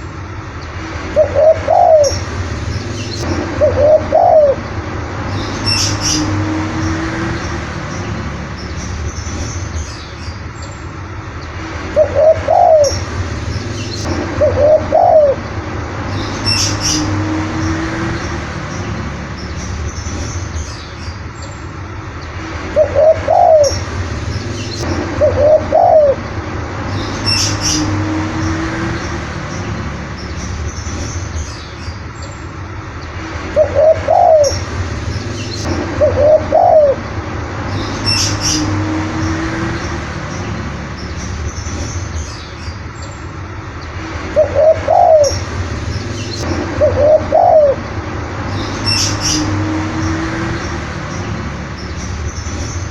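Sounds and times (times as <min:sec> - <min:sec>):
dove cooing: 0:01.2 - 0:02.2, 0:03.6 - 0:04.6, 0:12.0 - 0:13.0, 0:14.0 - 0:15.5, 0:22.8 - 0:23.8, 0:25.2 - 0:26.2, 0:33.6 - 0:34.6, 0:36.0 - 0:37.0, 0:44.4 - 0:45.4, 0:46.8 - 0:47.8.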